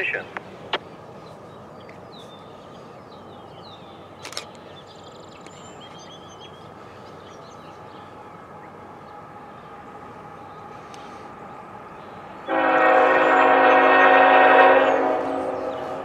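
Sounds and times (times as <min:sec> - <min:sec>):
small birds chirping: 0:00.0 - 0:12.5
diesel freight train rumble: 0:00.0 - 0:16.0
sharp click: 0:04.2 - 0:04.6.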